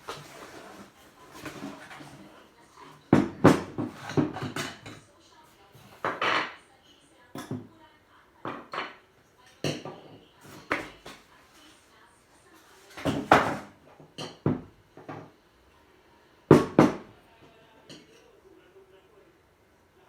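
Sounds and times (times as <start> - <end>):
knocks and clatters of blender parts: 0.0 - 5.1, 12.9 - 15.4, 16.5 - 17.1.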